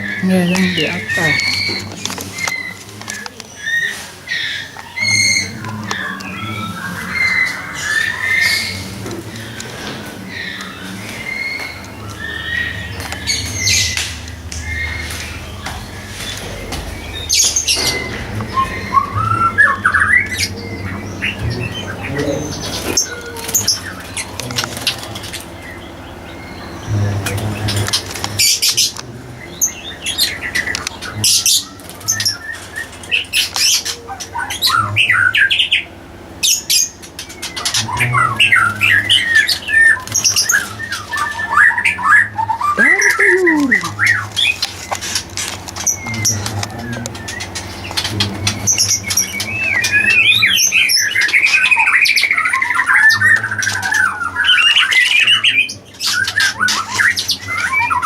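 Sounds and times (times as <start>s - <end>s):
birds squawking and chirping: 0.0s - 58.0s.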